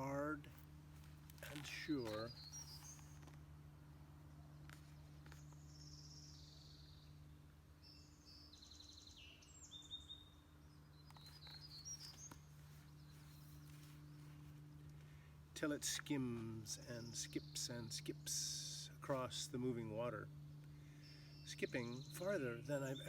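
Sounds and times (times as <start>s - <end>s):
low hum: 0.0s - 23.0s
songbirds chirping: 0.0s - 23.0s
bird trills: 1.6s - 3.3s.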